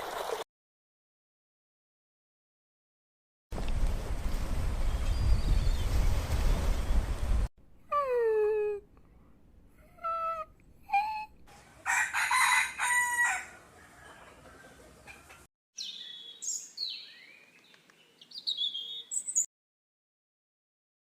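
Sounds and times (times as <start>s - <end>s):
rooster crowing: 11.8s - 15.2s.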